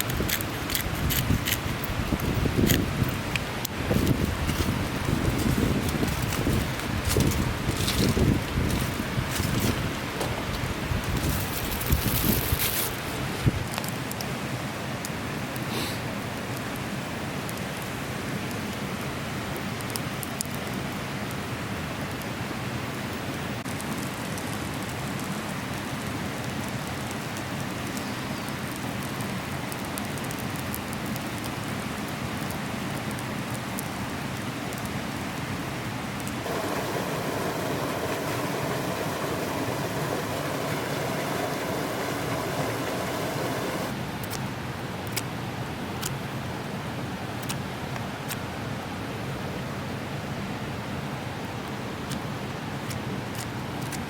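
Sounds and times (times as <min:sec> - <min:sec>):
campfire crackling and popping: 0:00.0 - 0:14.4, 0:26.0 - 0:35.0, 0:36.2 - 0:46.4, 0:47.3 - 0:48.4, 0:51.4 - 0:54.0
rushing noise: 0:36.4 - 0:44.0.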